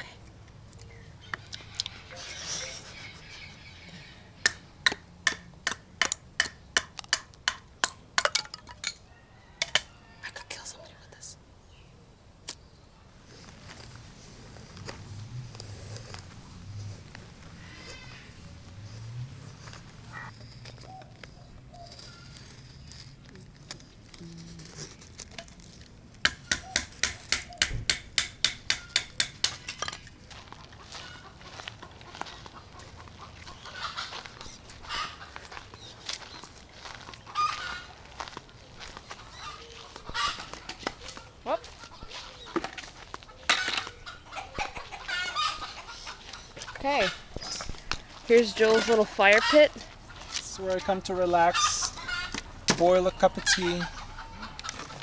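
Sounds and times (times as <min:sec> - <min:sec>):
blade chopping wood: 0:26.3 - 0:29.8, 0:52.7 - 0:53.0.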